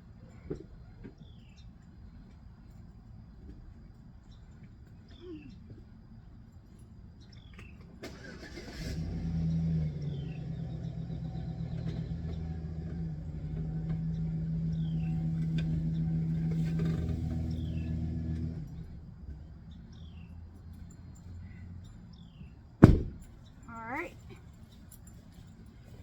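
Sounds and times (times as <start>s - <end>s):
pickup truck engine running: 8.1s - 24.0s.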